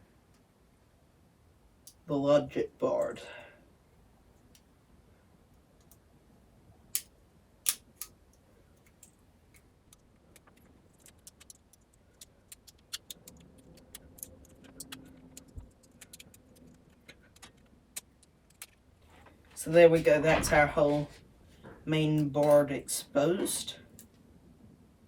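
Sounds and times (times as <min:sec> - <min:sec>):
small parts clicking and tapping: 0:07.7 - 0:19.4.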